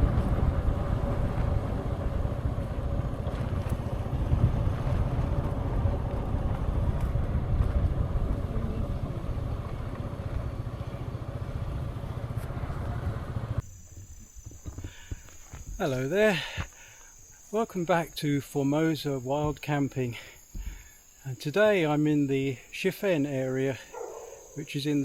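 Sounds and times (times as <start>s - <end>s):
motor scooter engine running: 0.0s - 13.6s
wind rush on microphone: 0.0s - 15.7s.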